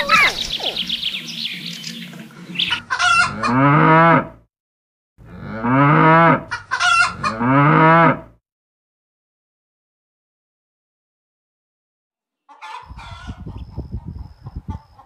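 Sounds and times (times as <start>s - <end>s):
cattle mooing: 3.2s - 4.4s, 5.2s - 8.4s.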